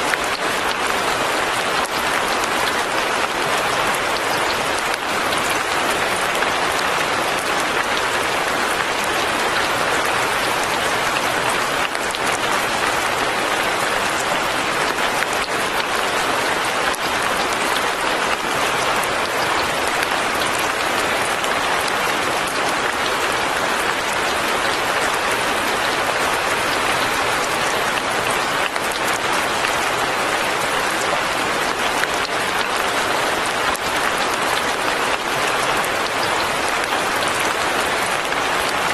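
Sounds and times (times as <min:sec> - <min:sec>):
rain pattering: 0:00.0 - 0:38.9.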